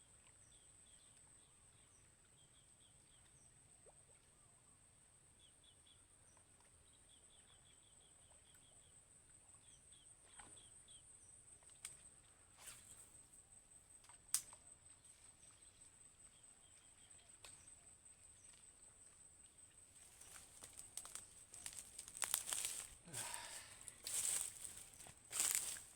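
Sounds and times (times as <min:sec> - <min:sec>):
rustling and crinkling: 0:19.9 - 0:25.9.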